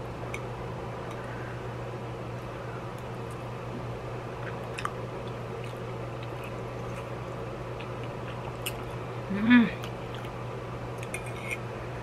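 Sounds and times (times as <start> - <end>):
electric fan hum: 0.0 - 12.0
person chewing and slurping noodles: 4.4 - 9.0.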